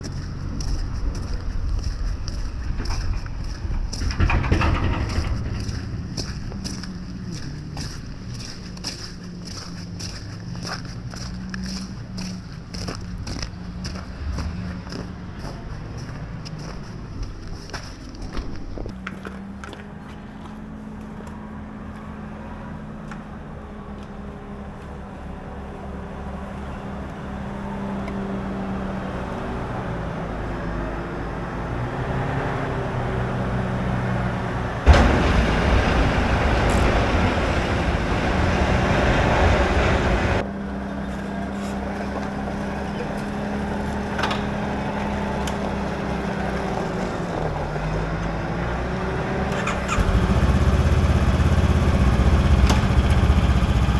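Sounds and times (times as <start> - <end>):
motorcycle engine humming: 0.0 - 53.9
loud rushing noise: 34.8 - 40.4.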